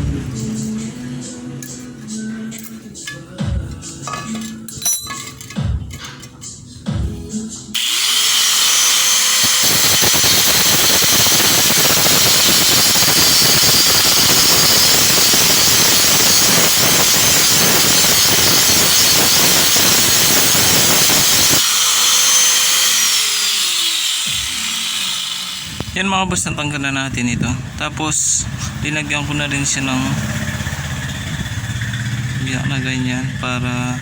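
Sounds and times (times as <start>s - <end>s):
electric grinder cutting metal: 7.8s - 26.0s.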